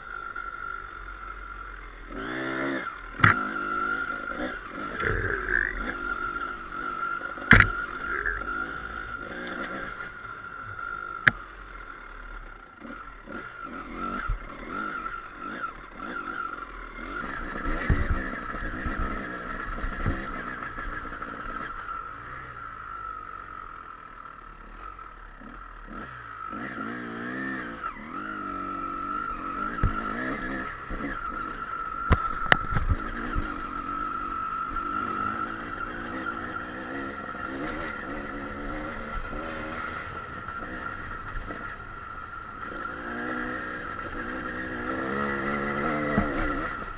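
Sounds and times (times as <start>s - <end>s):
dirt bike engine revving: 0.0s - 46.9s
high whine: 3.0s - 11.6s
sharp knocks: 7.5s - 7.8s.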